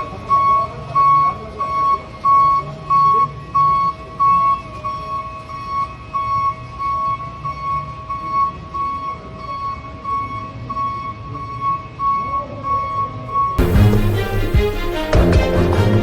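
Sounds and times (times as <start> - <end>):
pulsing high electronic note: 13.6 - 16.0.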